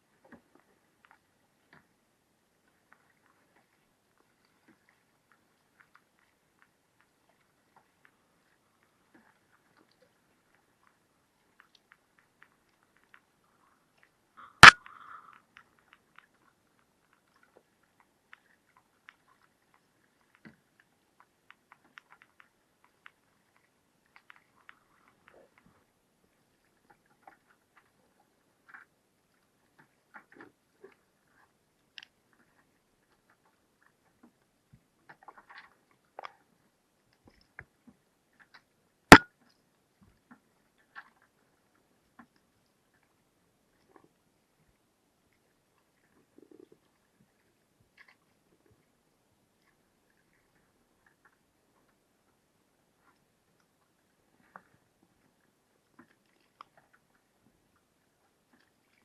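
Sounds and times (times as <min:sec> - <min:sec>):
faint clicks and rustles: 0:02.6 - 0:38.7, 0:53.0 - 0:59.0.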